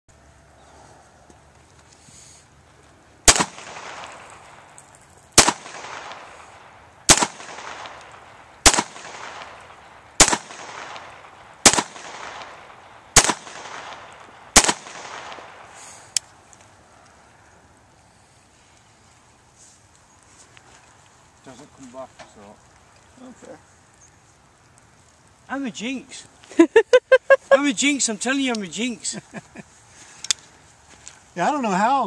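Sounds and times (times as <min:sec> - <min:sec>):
pistol shots echoing: 0:03.3 - 0:04.6, 0:05.4 - 0:15.8.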